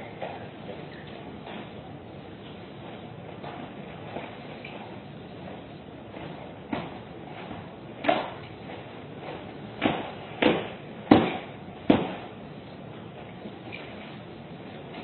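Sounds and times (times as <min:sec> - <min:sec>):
sharp knocks: 0:09.8 - 0:12.3.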